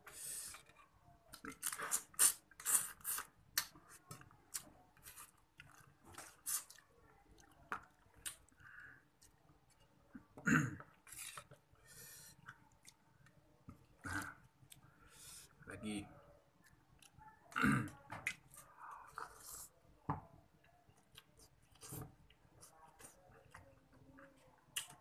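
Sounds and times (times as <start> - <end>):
person chewing wetly: 1.3 - 9.9, 12.4 - 13.3, 21.0 - 25.0.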